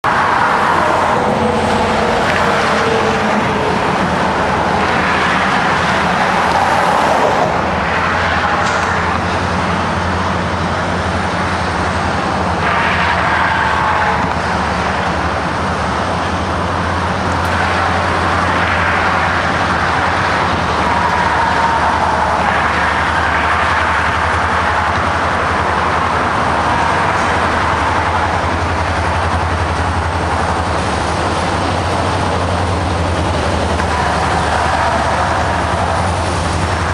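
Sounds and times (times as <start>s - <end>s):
diesel engine drone: 0.0s - 36.9s
train wheels rushing on rail: 0.0s - 36.9s
faint wavering squeals: 32.0s - 36.9s.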